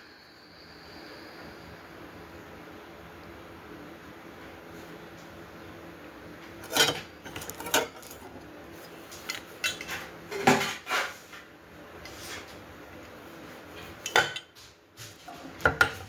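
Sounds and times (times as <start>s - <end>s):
metal grill parts clanking: 6.6s - 11.1s.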